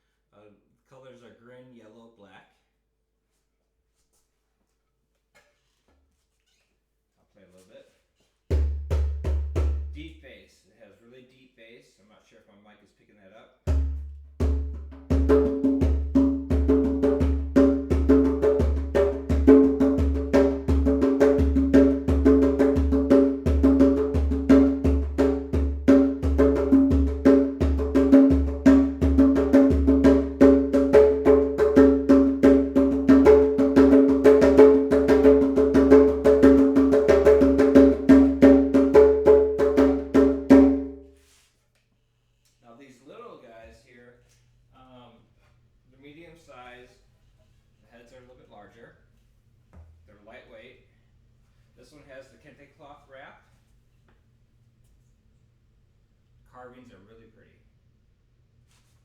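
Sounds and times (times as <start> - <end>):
djembe played by hand: 13.7 - 41.0.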